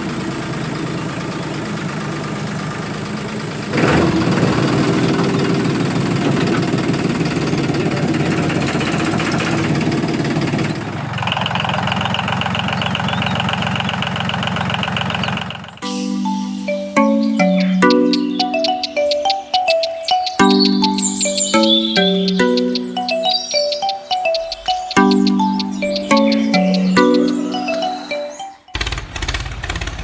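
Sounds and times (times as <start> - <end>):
diesel tractor engine knocking idle: 0.0 - 15.8.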